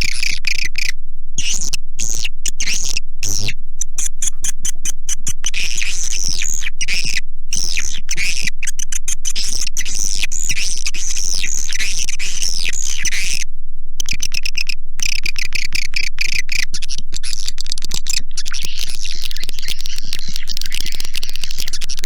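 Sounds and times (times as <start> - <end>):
steady low hum: 0.0 - 22.0
swiftlets twittering: 14.0 - 22.0.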